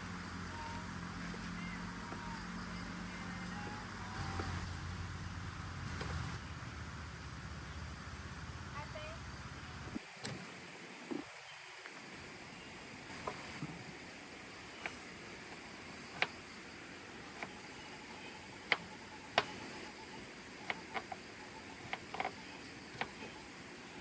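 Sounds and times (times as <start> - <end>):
rain hiss: 0.0 - 21.8
flowing river water: 10.0 - 24.0.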